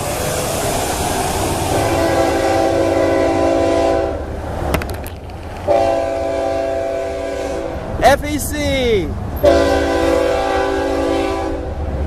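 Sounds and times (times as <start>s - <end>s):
train rumbling: 0.0s - 12.0s
locomotive air horn blasts: 1.8s - 4.2s, 5.7s - 7.8s, 9.4s - 11.8s.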